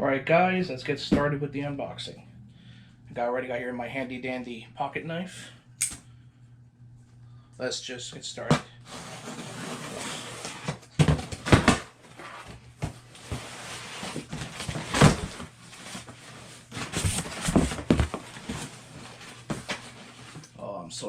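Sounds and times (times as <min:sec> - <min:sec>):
cardboard box knocks and scrapes: 0:16.7 - 0:18.7.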